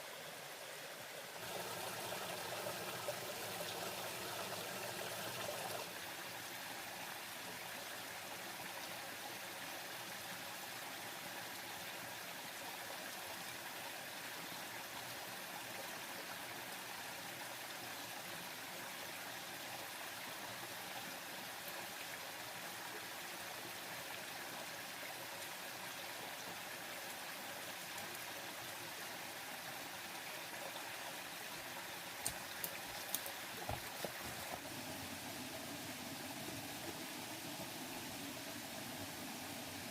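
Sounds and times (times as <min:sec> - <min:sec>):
stream water rushing: 0:00.0 - 0:11.8, 0:24.7 - 0:39.9.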